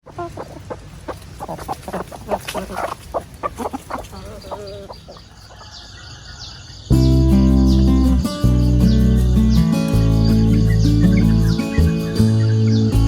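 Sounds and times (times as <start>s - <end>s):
hens clucking: 0.0s - 6.8s, 10.3s - 12.8s.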